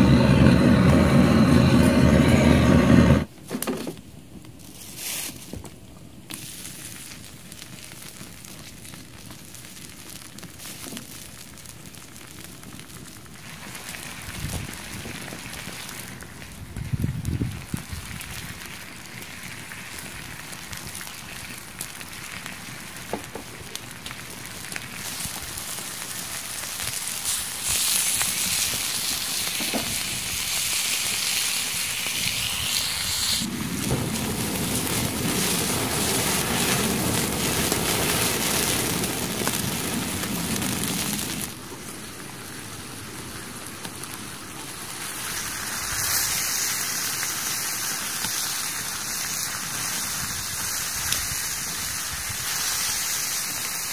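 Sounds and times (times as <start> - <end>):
steady sizzling hiss: 0.0 - 53.9
wood fire crackling: 0.0 - 53.9.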